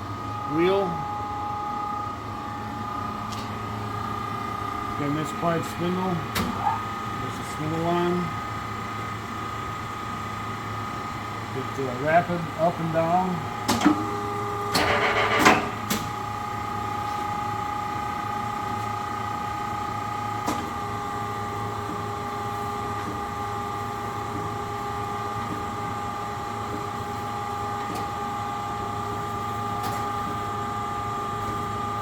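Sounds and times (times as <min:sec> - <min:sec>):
surface grinder whine: 0:14.8 - 0:15.9.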